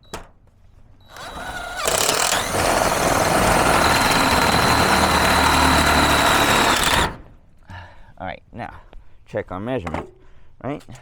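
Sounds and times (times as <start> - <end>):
cordless drill whining: 1.1 - 7.2.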